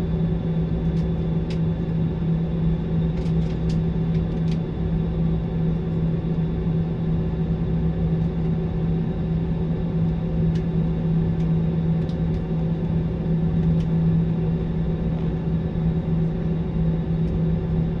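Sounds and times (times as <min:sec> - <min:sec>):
airliner cabin drone: 0:00.0 - 0:18.0.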